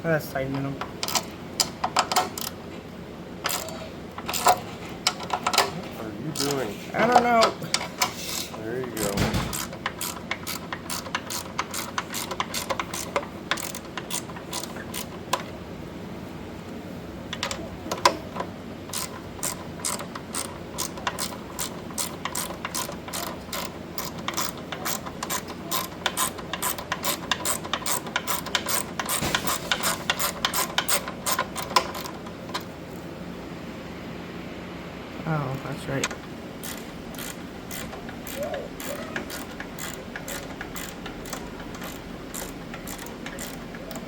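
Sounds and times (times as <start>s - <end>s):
socket wrench ratcheting: 1.0s - 2.6s, 3.4s - 5.7s, 6.3s - 7.9s, 8.9s - 15.5s, 17.3s - 32.7s, 36.6s - 44.0s.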